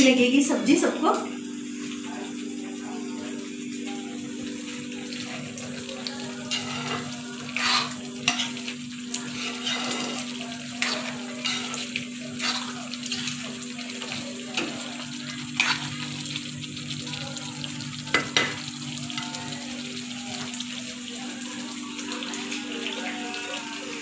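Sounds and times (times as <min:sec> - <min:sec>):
curry sizzling in a pan: 0:00.0 - 0:24.0
metal spatula stirring and scraping: 0:06.1 - 0:16.3.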